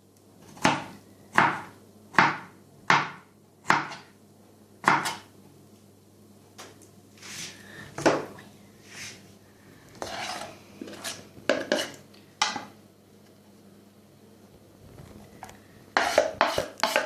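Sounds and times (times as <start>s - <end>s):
knife chopping on cutting board: 0.5s - 4.1s, 4.8s - 5.3s, 16.0s - 17.0s
knife scraping: 10.0s - 12.0s, 16.0s - 17.0s.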